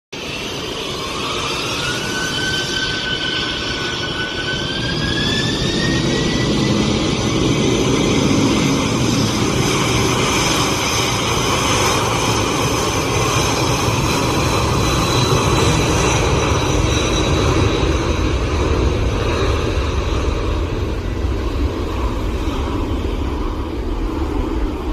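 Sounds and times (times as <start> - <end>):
jet engine whine: 0.1 - 24.9
deep jet rumble: 0.2 - 24.9.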